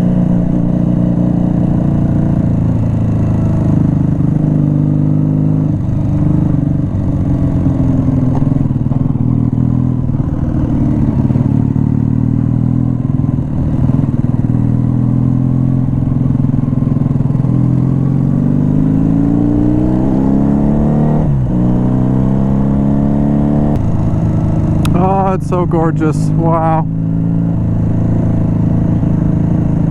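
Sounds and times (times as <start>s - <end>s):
motorcycle engine accelerating: 0.0s - 29.9s.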